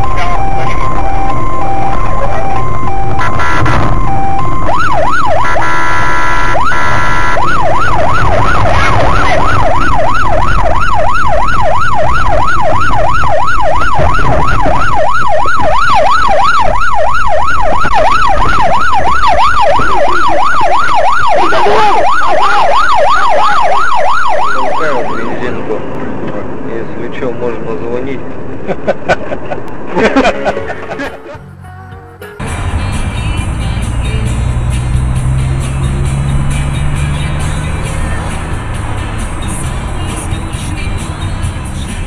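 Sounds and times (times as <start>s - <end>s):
siren yelping: 0.0s - 25.6s
vehicle rumble: 0.0s - 42.0s
steady horn-like tone: 3.1s - 3.9s, 5.4s - 7.4s.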